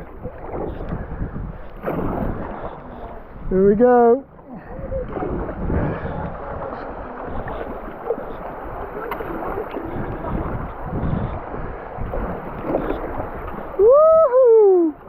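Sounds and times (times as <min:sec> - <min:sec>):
river water rushing and splashing: 0:04.9 - 0:15.0.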